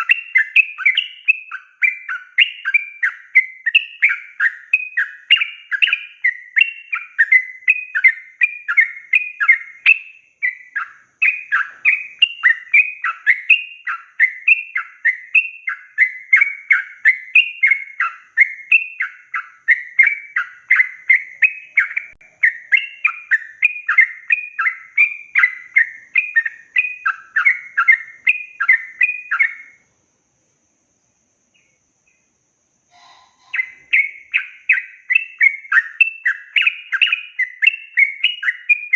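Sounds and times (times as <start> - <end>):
bird singing chirping phrases: 0.0 - 29.9, 31.0 - 38.9
faint brief bird note: 32.9 - 34.1.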